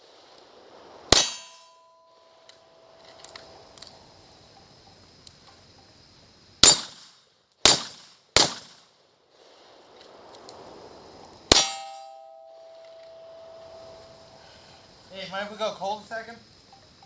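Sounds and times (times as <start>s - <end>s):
gunshots: 1.1s - 1.7s, 6.6s - 8.9s, 11.5s - 12.1s
steel target ringing: 1.1s - 3.2s, 11.5s - 14.3s.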